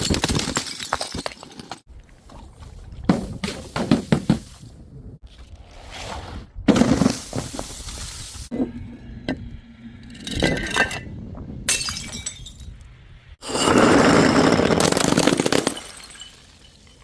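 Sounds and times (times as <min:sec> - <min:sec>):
glass bottles breaking: 0:00.0 - 0:01.7, 0:11.7 - 0:12.7, 0:13.4 - 0:17.0
glassy clinks and knocks: 0:15.6 - 0:17.0.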